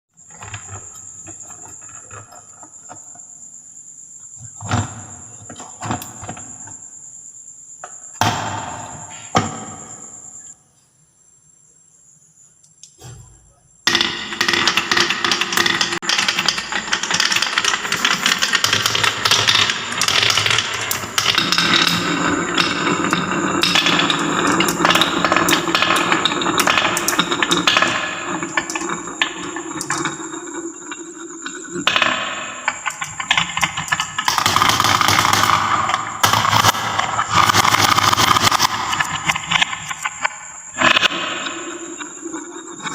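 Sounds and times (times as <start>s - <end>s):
balls clattering down wooden marble run: 13.9s - 42.9s.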